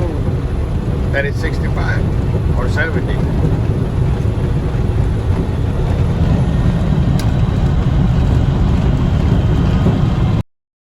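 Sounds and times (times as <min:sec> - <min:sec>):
truck engine and road rumble: 0:00.0 - 0:10.5.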